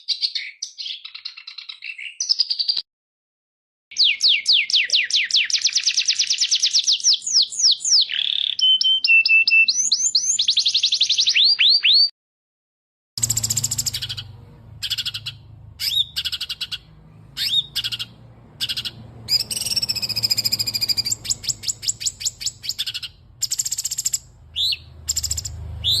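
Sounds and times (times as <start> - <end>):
bird trill: 0.0 - 2.8, 3.9 - 12.1, 13.2 - 26.0
songbird song: 0.0 - 2.8, 3.9 - 12.1, 13.2 - 26.0
dry clicking bird notes: 13.2 - 24.3.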